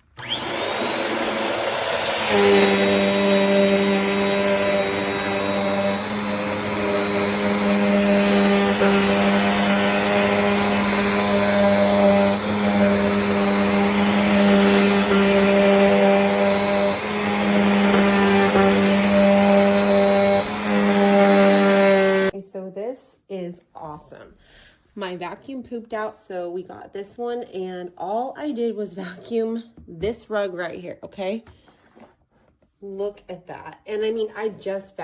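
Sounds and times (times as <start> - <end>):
vacuum cleaner running: 0.0 - 22.4.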